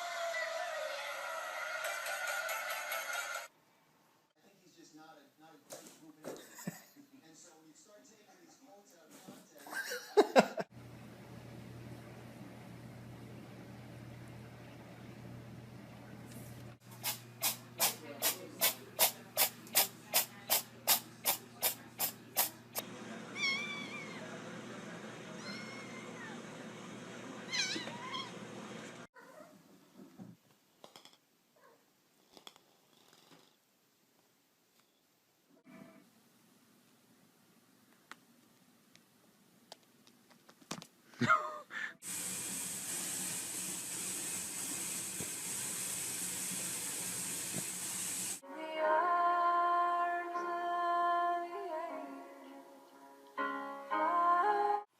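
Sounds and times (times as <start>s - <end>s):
cat meowing: 23.4s - 24.3s, 25.4s - 26.4s, 27.5s - 28.4s.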